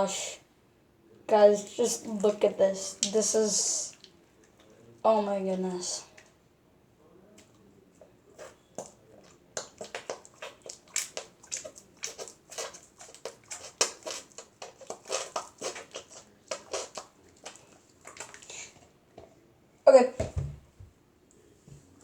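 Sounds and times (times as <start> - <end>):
slime squelching by hand: 1.4 - 4.8, 8.4 - 19.0.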